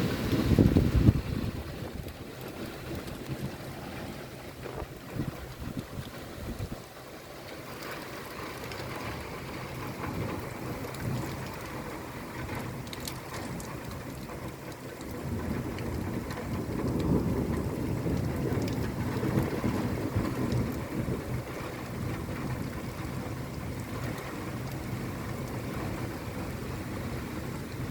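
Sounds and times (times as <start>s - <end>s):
rain pattering on window glass: 0.0s - 27.9s
distant thunder rumbling: 13.6s - 27.6s.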